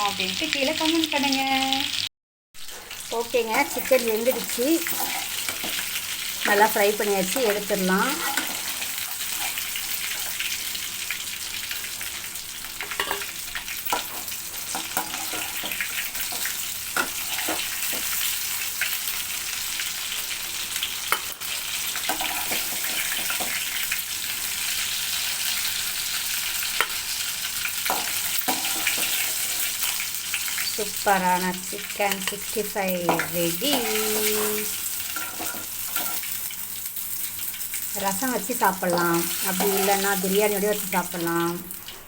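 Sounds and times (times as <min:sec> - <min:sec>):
chicken frying in hot oil: 0:00.0 - 0:42.0.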